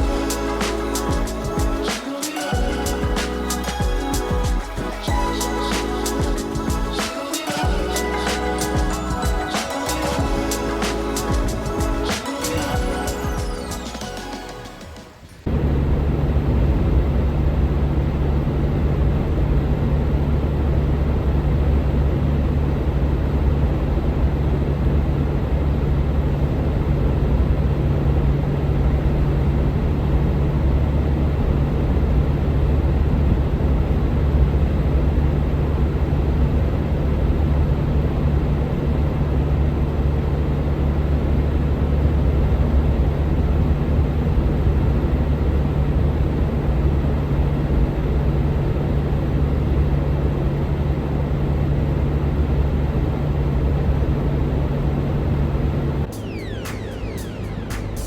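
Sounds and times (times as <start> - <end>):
road noise: 53.5 - 58.0.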